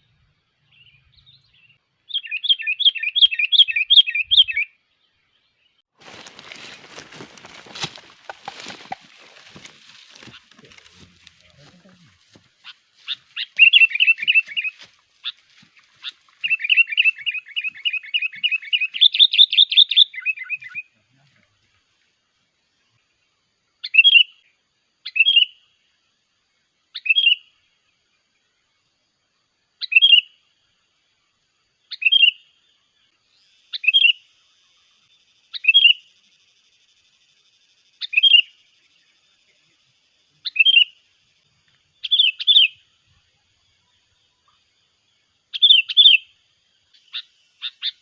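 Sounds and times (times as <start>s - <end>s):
bulbul chattering calls: 12.6s - 15.4s.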